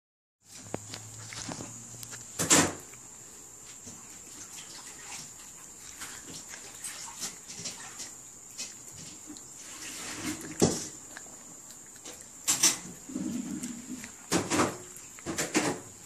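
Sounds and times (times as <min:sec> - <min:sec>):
puppy eating clicks and smacks: 0:03.8 - 0:16.0.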